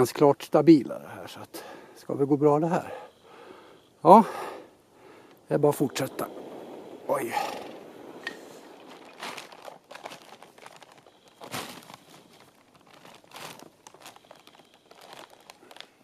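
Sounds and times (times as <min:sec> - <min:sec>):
rustling: 0:05.0 - 0:16.0
footsteps crunching in snow: 0:05.6 - 0:16.0.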